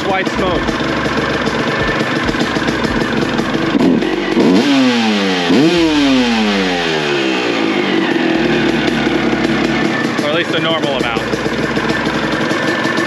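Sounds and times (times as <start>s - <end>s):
two-stroke motorcycle engine revving: 0.0s - 13.0s.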